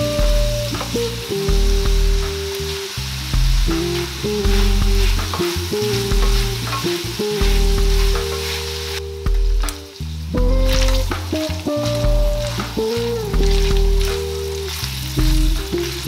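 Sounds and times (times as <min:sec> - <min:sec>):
background music low notes: 0:00.0 - 0:16.0
meat sizzling in a skillet: 0:00.0 - 0:16.0.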